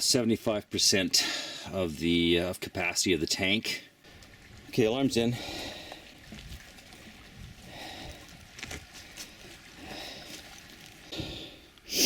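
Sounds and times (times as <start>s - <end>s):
person breathing: 1.2s - 1.7s, 5.4s - 6.2s, 7.6s - 8.3s, 9.0s - 12.0s.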